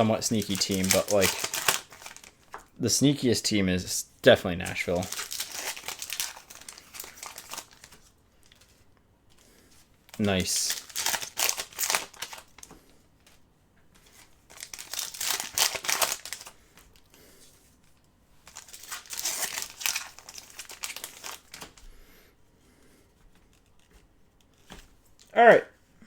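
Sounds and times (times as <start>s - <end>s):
wrappers tearing and crinkling: 0.0s - 2.7s, 4.6s - 8.8s, 10.0s - 13.4s, 14.0s - 17.2s, 17.9s - 21.8s.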